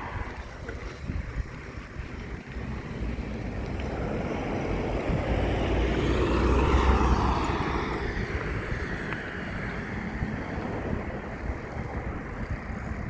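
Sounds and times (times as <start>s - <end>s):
vehicle passing by: 2.1s - 13.0s.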